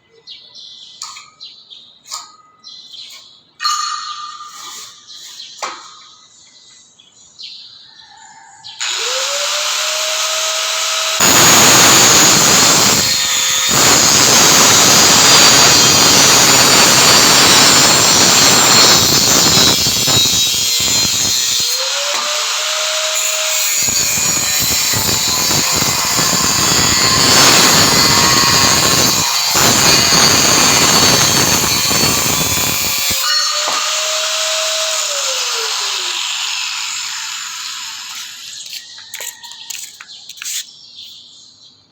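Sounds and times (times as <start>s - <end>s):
angle grinder whining: 8.8s - 40.0s
angle grinder cutting steel: 8.8s - 40.6s.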